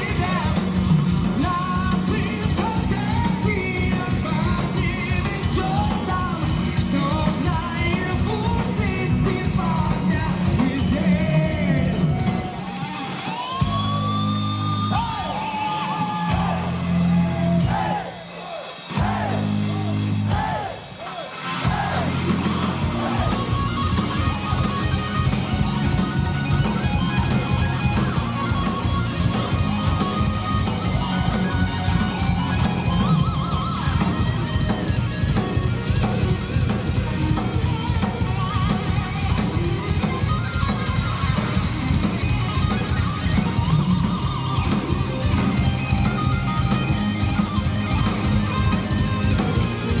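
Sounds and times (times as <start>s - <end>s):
fast drum beat: 0.0s - 50.0s
heavy metal band playing: 0.0s - 50.0s
electric guitar bending notes: 21.5s - 50.0s.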